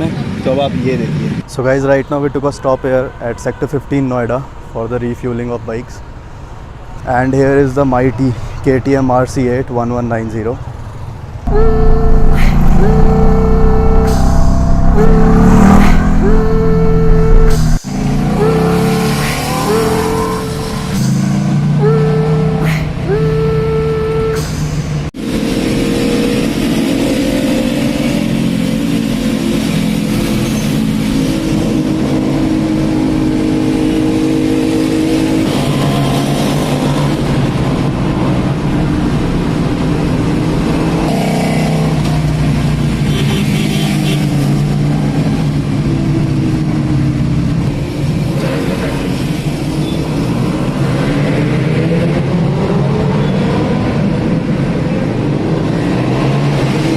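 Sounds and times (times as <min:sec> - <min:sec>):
motorcycle engines revving: 0:11.5 - 0:56.9.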